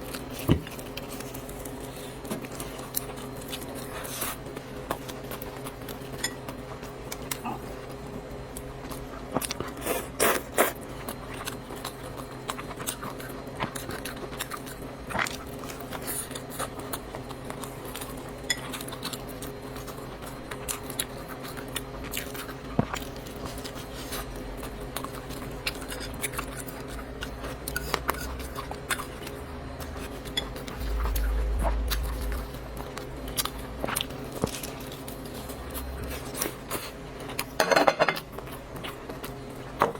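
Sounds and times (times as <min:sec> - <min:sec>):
chewing noodles: 0:00.0 - 0:37.6
steady low hum: 0:00.0 - 0:39.9
low rumble: 0:29.8 - 0:34.0.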